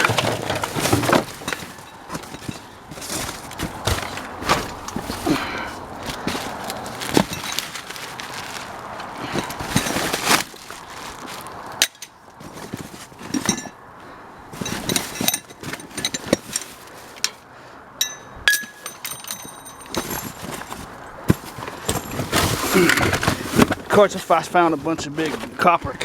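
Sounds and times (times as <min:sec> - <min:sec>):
junk being shifted: 0:00.0 - 0:17.5, 0:18.4 - 0:26.0
hard ringing clinks: 0:18.0 - 0:20.8.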